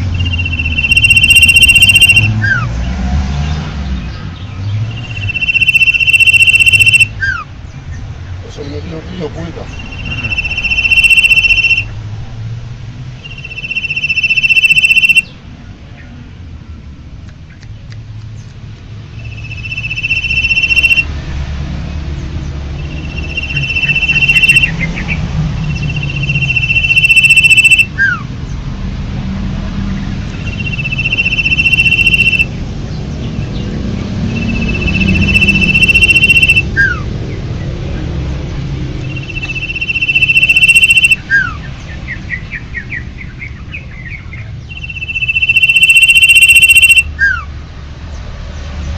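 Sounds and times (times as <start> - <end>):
bird high whistle: 0.0 - 2.6, 5.0 - 7.4, 9.7 - 11.9, 13.2 - 15.3, 19.2 - 21.1, 22.8 - 28.2, 30.4 - 32.5, 34.3 - 37.0, 39.0 - 41.6, 44.7 - 47.4.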